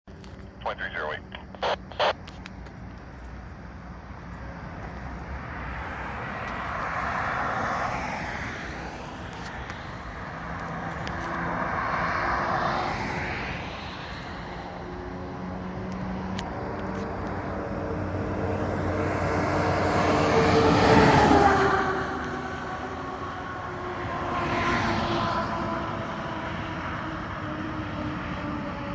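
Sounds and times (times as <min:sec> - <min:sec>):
vehicle noise: 0:00.1 - 0:28.9.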